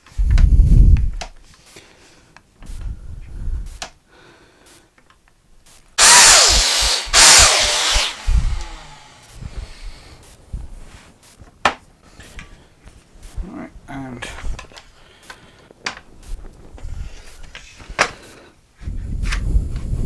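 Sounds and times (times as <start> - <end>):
plunge saw cutting wood: 6.0 - 9.4.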